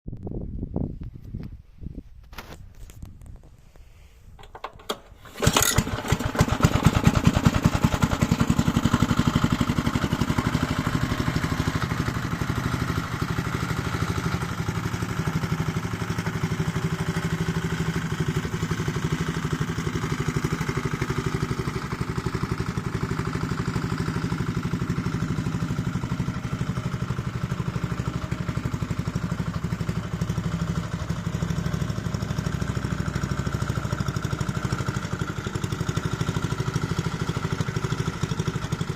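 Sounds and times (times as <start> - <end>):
rattling knocks: 4.4 - 5.9
small engine running: 4.8 - 38.9.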